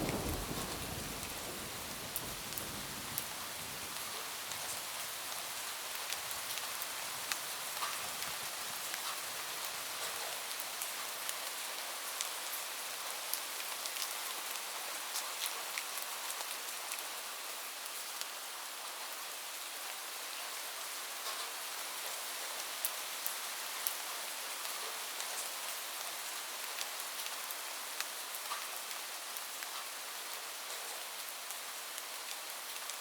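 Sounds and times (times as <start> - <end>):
low thunder rumble: 0.0 - 3.8
rain on a roof: 0.0 - 33.0.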